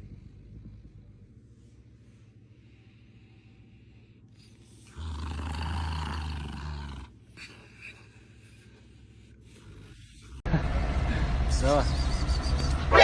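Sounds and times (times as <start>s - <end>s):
cat growling: 4.6s - 7.8s.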